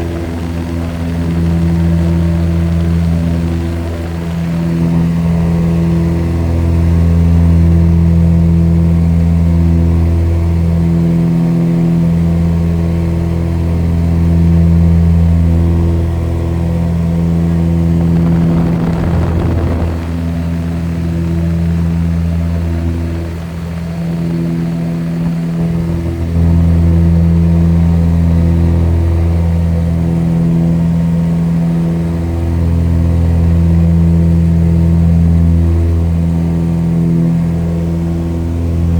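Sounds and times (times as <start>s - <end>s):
aircraft engine droning: 0.0s - 38.9s
brief rush of noise: 18.0s - 21.0s.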